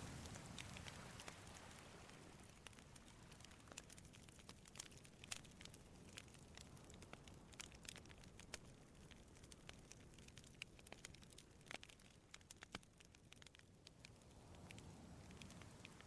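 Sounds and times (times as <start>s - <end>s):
low steady rumble: 0.0s - 3.3s
campfire crackling: 0.0s - 16.0s.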